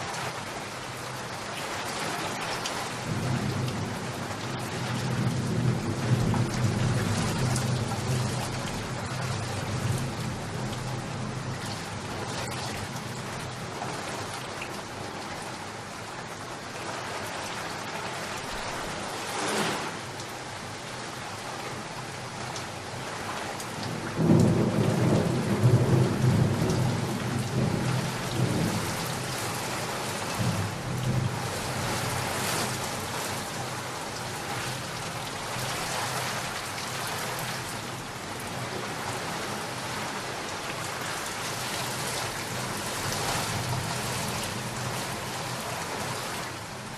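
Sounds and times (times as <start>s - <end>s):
steady rain falling: 0.0s - 46.9s
thunder clap and rumble: 3.0s - 13.6s, 23.8s - 32.8s.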